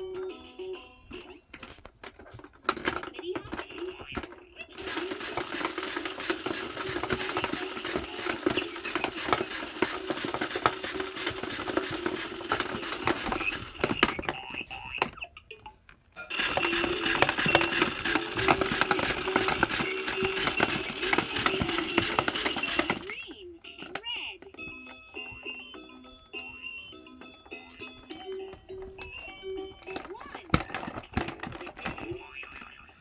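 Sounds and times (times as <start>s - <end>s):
plastic clicking and rattling: 0.0s - 26.4s, 27.2s - 33.0s
small motor humming: 4.7s - 14.1s, 16.3s - 23.2s.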